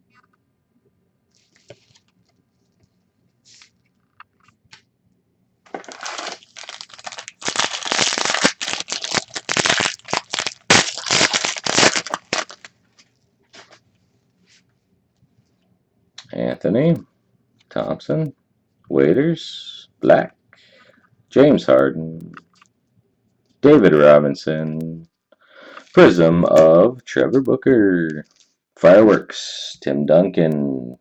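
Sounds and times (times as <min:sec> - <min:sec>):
foil wrapper tearing and crinkling: 0:05.7 - 0:12.8.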